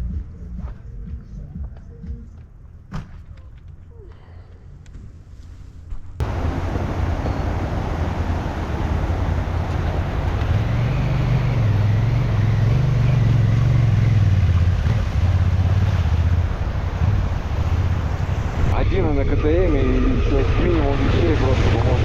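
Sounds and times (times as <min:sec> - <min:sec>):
road and wind noise: 0:00.0 - 0:22.0
motorcycle engine running: 0:06.2 - 0:18.8.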